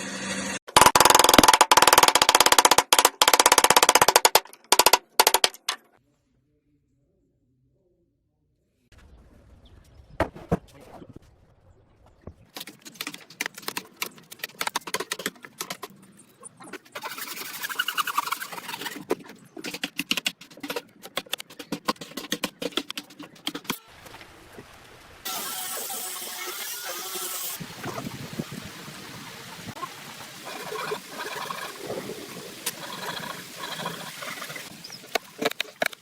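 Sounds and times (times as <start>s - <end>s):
fast uneven clicks: 0.7s - 5.8s.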